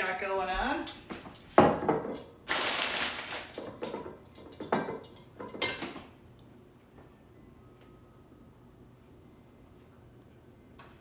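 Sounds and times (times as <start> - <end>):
dishes and utensils clattering: 0.9 - 6.1.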